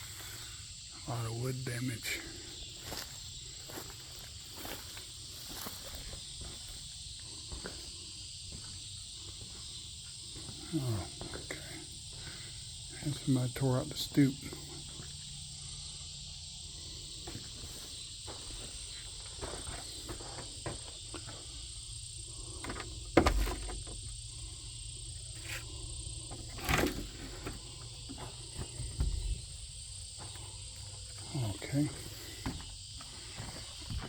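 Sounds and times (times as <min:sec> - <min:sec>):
crickets chirping: 0:00.0 - 0:34.0
knocks and thumps: 0:22.6 - 0:24.0, 0:26.3 - 0:29.6, 0:32.2 - 0:34.0.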